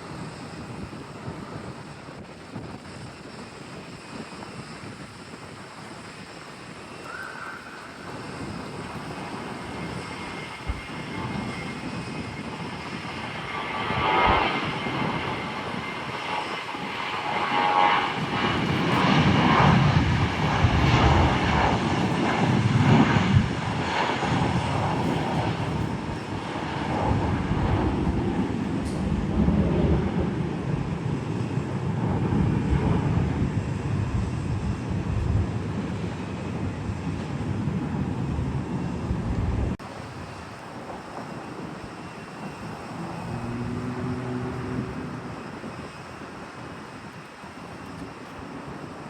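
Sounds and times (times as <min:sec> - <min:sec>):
airliner engines rumbling: 0:00.0 - 0:49.0
faint whine: 0:38.5 - 0:47.5.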